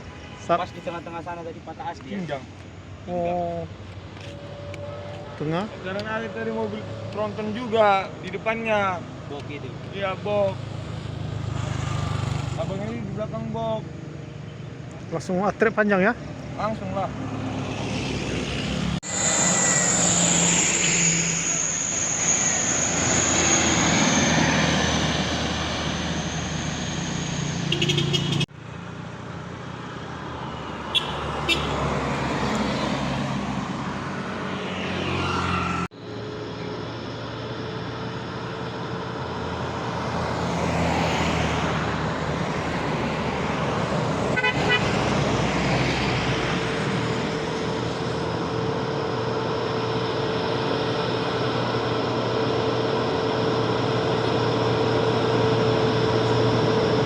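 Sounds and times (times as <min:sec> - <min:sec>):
truck and car engines passing: 0:00.0 - 0:57.0
vehicle horn: 0:04.2 - 0:06.7, 0:27.7 - 0:28.5, 0:30.8 - 0:32.0, 0:44.3 - 0:45.2.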